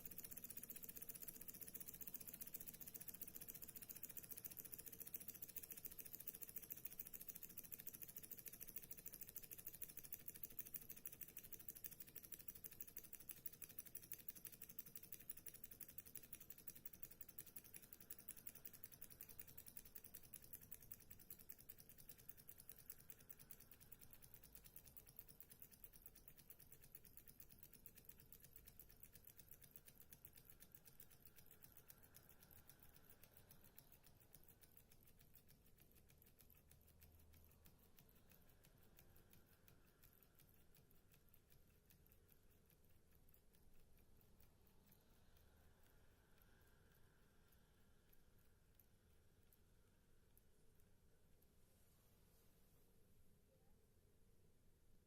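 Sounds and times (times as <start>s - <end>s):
model engine clicking: 0.0s - 42.3s.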